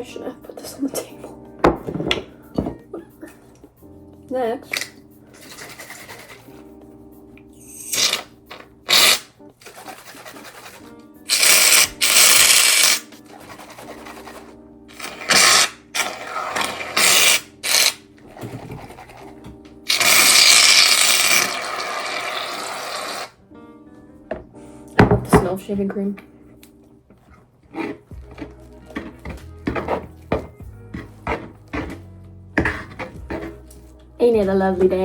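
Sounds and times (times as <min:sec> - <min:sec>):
background music: 0:00.0 - 0:35.0
aerosol can hissing: 0:08.9 - 0:09.3, 0:11.3 - 0:13.1, 0:15.0 - 0:18.0, 0:19.9 - 0:23.3.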